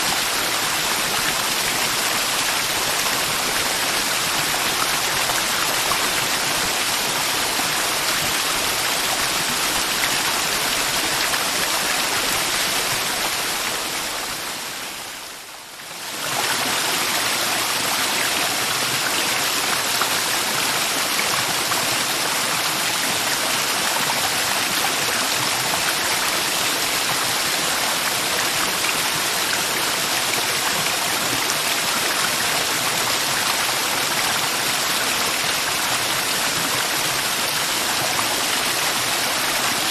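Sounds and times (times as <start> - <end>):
river water rushing: 16.0 - 39.9.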